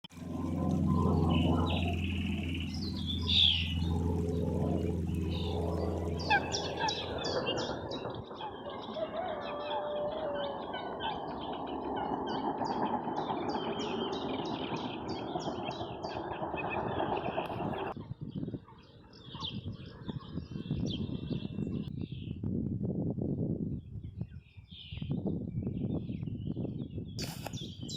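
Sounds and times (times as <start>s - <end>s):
steady rushing noise: 0.1s - 8.9s
songbirds singing: 0.2s - 22.5s, 23.2s - 27.9s.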